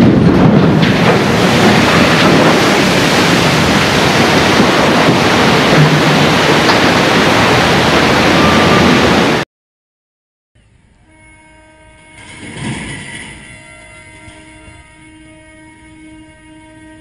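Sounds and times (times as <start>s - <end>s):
rush of water and spray: 0.4s - 9.4s
steady horn tones: 8.2s - 9.4s, 10.8s - 17.0s.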